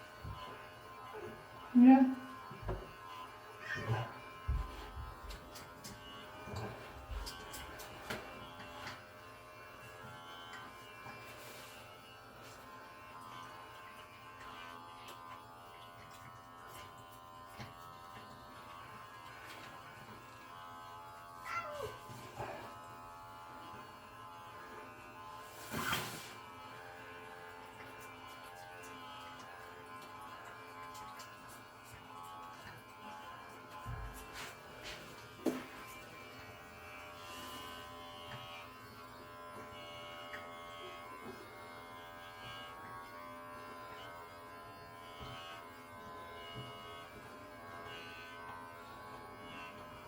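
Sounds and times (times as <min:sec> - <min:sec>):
electric hair clippers running: 0:00.0 - 0:50.0
cat meowing: 0:03.6 - 0:04.0, 0:21.4 - 0:22.0.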